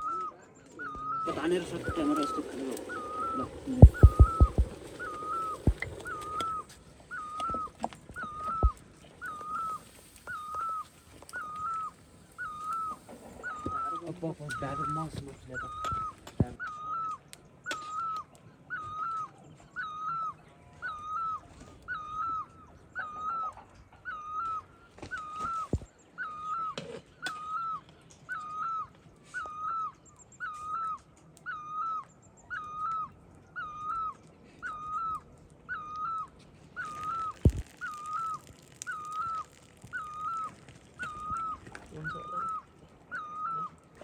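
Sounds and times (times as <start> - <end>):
animal call repeating: 0.0 - 17.2, 27.4 - 43.9.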